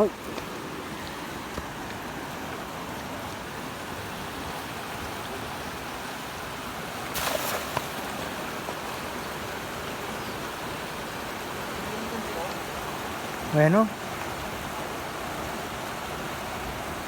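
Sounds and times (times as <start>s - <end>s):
flowing river water: 0.0s - 17.0s.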